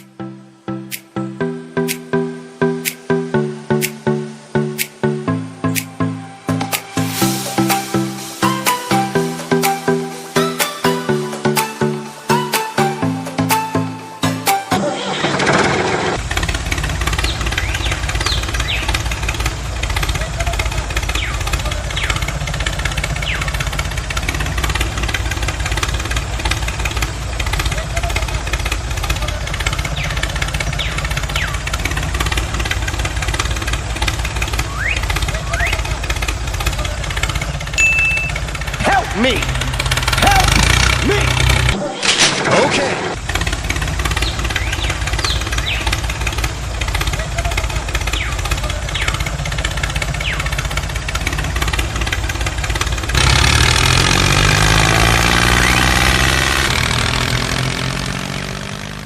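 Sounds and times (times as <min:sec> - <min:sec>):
tractor engine chugging: 0:06.7 - 0:41.8, 0:43.2 - 0:59.0
small motor running with ticking: 0:16.1 - 0:41.8, 0:43.2 - 0:59.0
whistle-like pitch glides: 0:34.6 - 0:35.9, 0:37.8 - 0:38.4.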